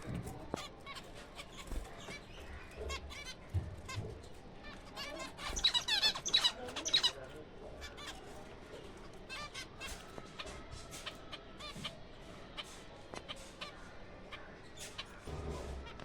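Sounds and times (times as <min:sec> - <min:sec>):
finches chirping: 0:05.0 - 0:08.4.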